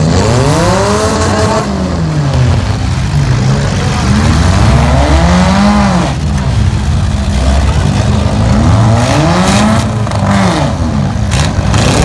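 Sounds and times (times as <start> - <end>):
car engines running loudly: 0.0 - 12.0
engine revving: 0.0 - 12.0.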